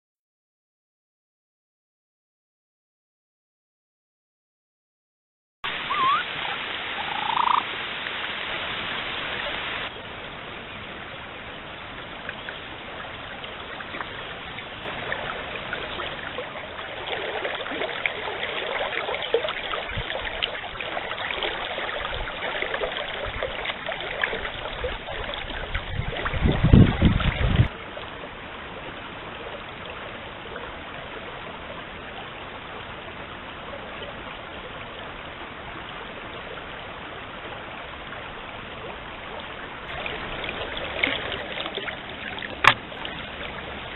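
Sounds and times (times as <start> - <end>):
stream water running: 5.6 - 43.9.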